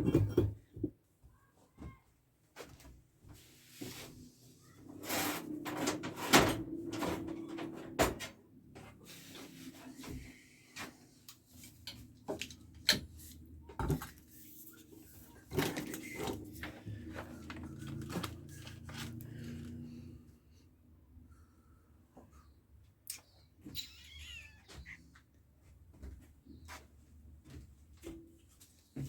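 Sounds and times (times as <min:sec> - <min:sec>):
objects knocking and clattering: 0:00.0 - 0:01.0.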